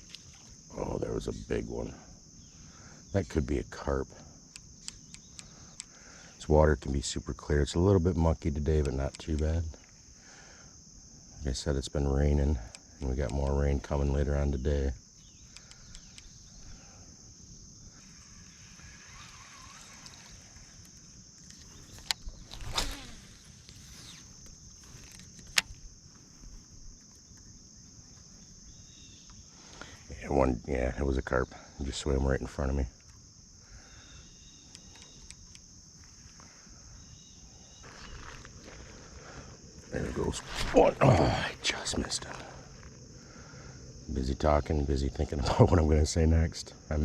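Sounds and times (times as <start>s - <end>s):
crickets trilling: 0.0s - 47.0s
insects chirping: 0.0s - 47.0s
faint ticks: 4.2s - 6.3s, 8.4s - 10.0s, 12.5s - 13.7s, 15.1s - 16.8s, 32.9s - 36.6s
faint clicks: 4.5s - 6.1s, 8.7s - 10.0s, 12.6s - 13.6s, 15.2s - 16.4s, 34.6s - 36.5s.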